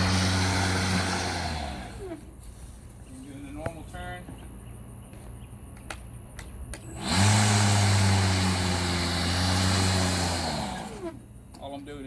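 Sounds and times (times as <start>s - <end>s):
lawn mower motor humming: 0.0s - 2.4s, 6.8s - 11.7s.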